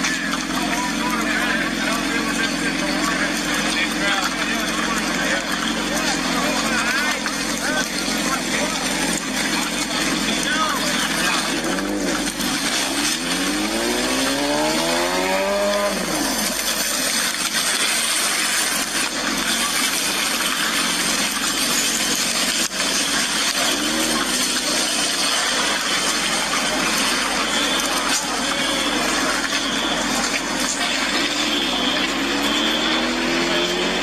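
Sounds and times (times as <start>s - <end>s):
rushing street noise: 0.0s - 34.0s
vehicle engine revving: 0.0s - 34.0s.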